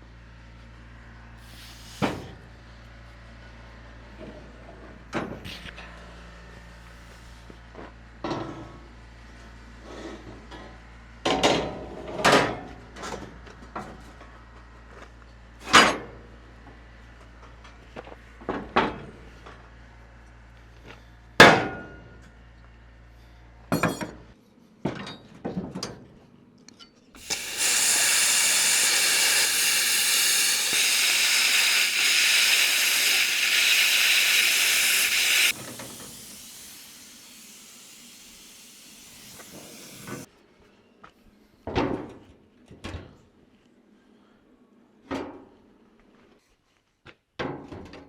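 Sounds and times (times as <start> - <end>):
welder arc hissing and crackling: 1.4 - 2.2, 27.2 - 40.3.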